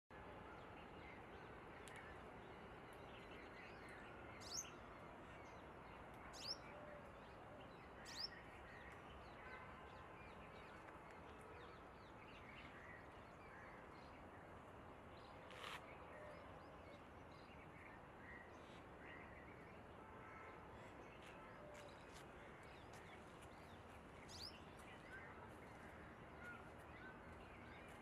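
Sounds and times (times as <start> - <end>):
small birds chirping: 21.2 - 28.0.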